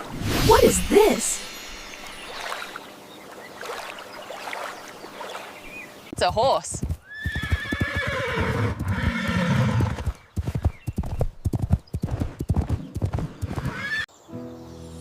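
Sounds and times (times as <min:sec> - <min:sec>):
hooves clip-clopping: 0:06.2 - 0:14.0
horse whinnying: 0:07.1 - 0:10.1, 0:13.6 - 0:14.1.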